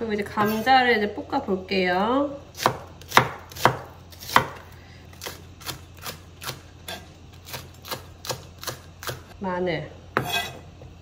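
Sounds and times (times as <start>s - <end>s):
knife chopping on cutting board: 2.6s - 9.3s, 10.2s - 10.6s.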